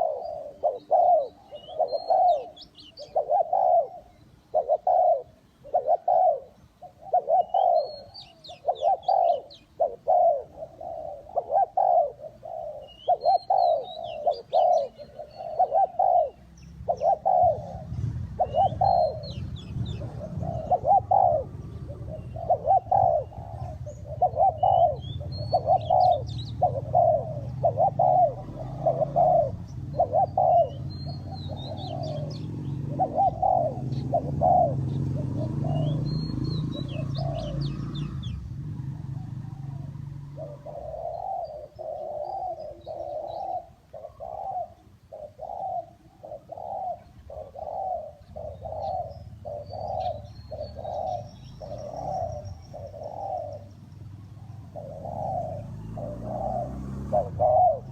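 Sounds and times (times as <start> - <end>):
bird chirping: 0.0 - 57.9
doves cooing: 0.0 - 57.9.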